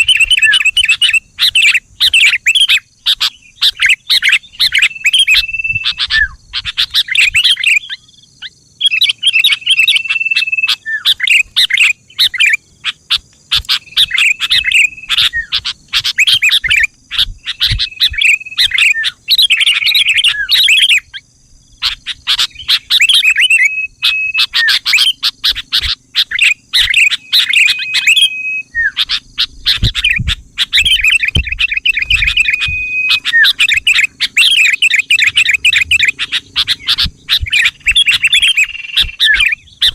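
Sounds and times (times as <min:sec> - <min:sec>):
bird chattering chirps: 0:00.0 - 0:39.9.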